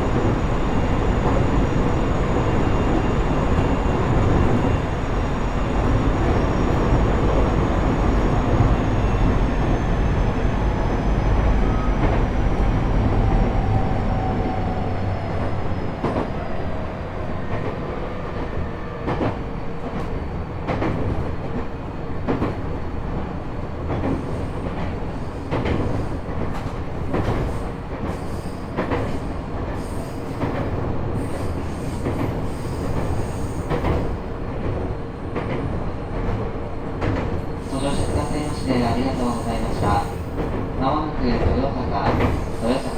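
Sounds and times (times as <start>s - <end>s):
train running noise: 0.0s - 42.9s.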